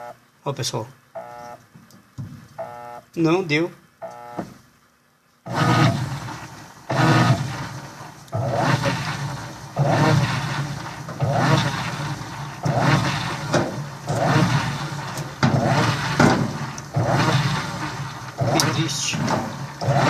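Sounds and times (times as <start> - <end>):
washing machine agitator churning water: 5.5 - 20.0.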